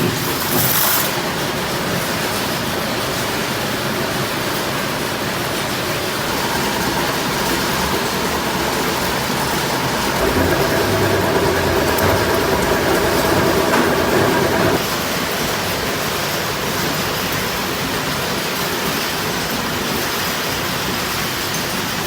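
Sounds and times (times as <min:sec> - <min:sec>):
machinery humming: 0:06.0 - 0:14.9.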